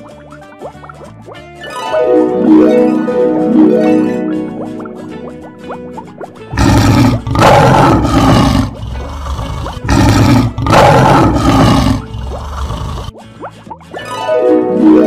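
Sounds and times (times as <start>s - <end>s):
light plucked music: 0.0s - 12.5s, 13.1s - 15.0s
lion roar: 6.5s - 13.1s.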